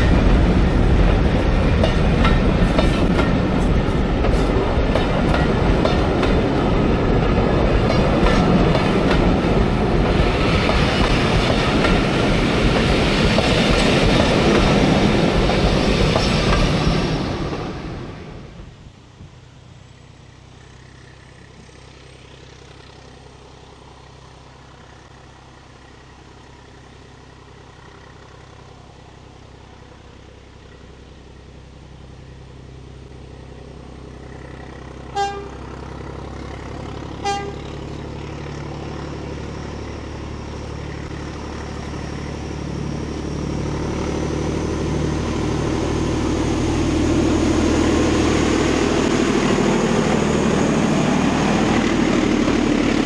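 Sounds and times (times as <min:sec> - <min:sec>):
diesel locomotive engine: 0:00.0 - 0:53.0
train horn toots: 0:35.1 - 0:35.7, 0:37.1 - 0:37.7.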